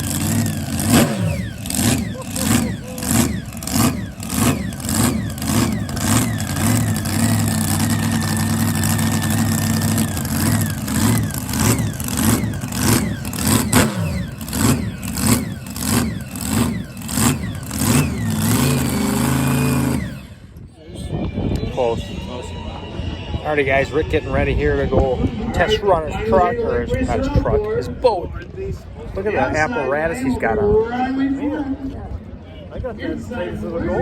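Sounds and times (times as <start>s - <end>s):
jet boat engine revving: 0.0s - 20.7s.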